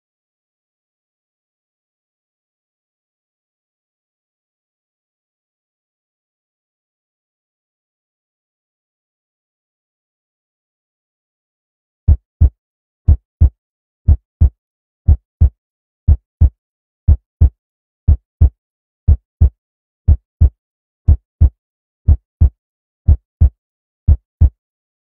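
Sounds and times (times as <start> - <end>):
heartbeat double thumps: 12.1 - 24.6.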